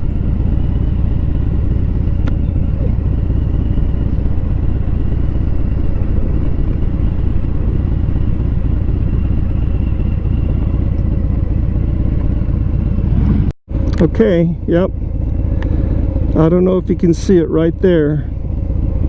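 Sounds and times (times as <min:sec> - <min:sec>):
low wind rumble on microphone: 0:00.0 - 0:14.0
motorcycle engine running: 0:00.0 - 0:19.0.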